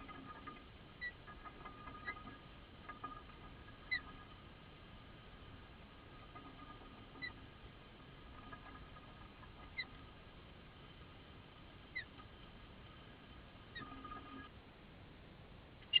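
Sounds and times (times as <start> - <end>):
faint background hum: 0.0 - 16.0
small bird chirping: 0.1 - 2.3, 3.0 - 4.3, 6.6 - 7.5, 8.5 - 10.1, 11.9 - 12.3, 13.7 - 14.5.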